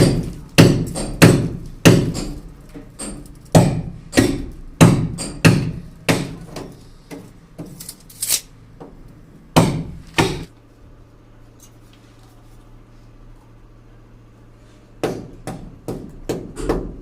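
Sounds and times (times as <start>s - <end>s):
hammer strikes: 0.0s - 7.8s, 9.6s - 10.5s, 15.0s - 17.0s.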